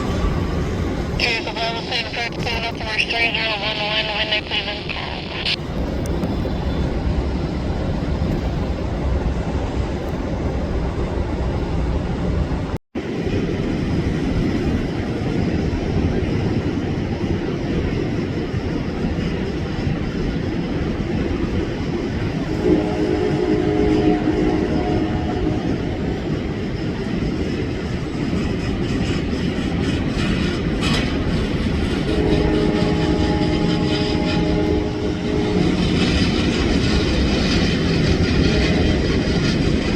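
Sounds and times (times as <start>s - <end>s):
jet engine whine: 0.0s - 9.2s
jet engines rumbling on takeoff: 0.0s - 39.9s.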